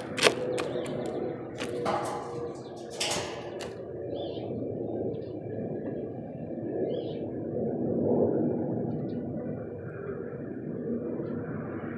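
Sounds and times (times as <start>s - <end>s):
bird clicks and knocks: 0.0s - 3.8s.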